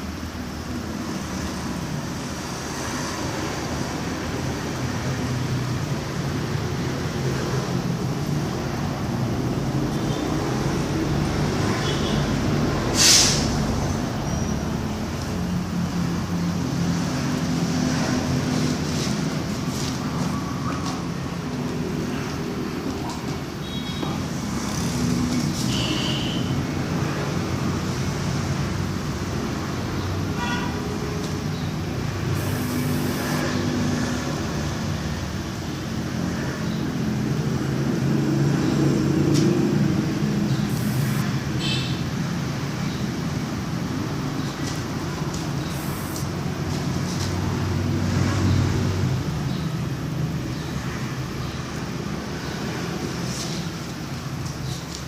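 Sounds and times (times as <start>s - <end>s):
road traffic noise: 0.0s - 55.0s
engine humming: 31.2s - 34.1s, 37.0s - 41.6s.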